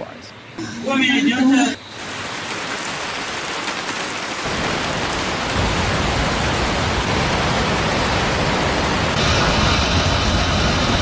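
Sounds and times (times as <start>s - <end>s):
heavy rain rushing: 0.9s - 11.0s
deep rumble: 5.4s - 11.0s.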